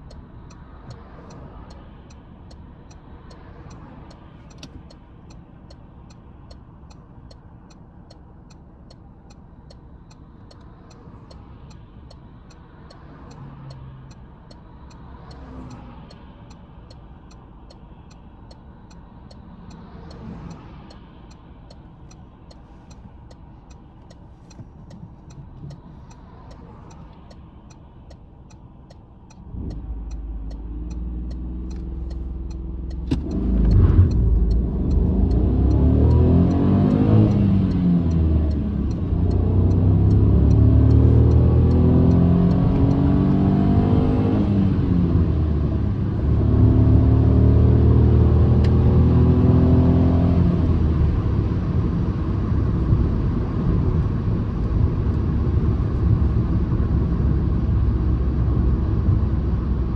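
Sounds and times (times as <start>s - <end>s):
steady ticking: 0.0s - 47.0s
car engine running and revving: 0.0s - 59.9s.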